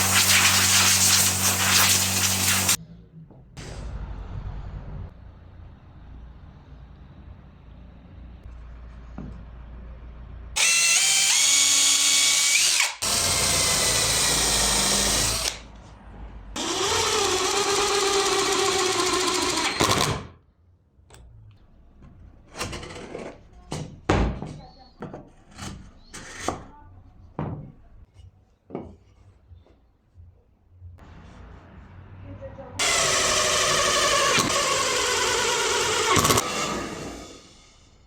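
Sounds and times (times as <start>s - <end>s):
power drill whining: 10.6s - 15.6s, 16.6s - 20.1s, 32.8s - 38.0s.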